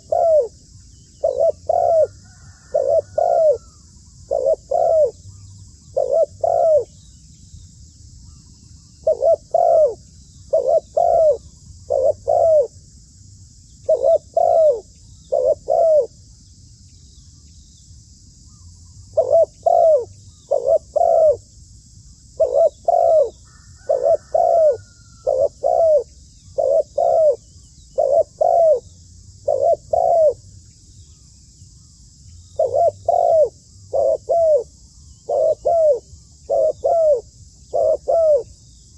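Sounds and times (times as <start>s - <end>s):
dove cooing: 0.0s - 7.0s, 9.0s - 12.8s, 13.8s - 16.2s, 18.5s - 21.5s, 22.4s - 30.5s, 32.6s - 38.6s.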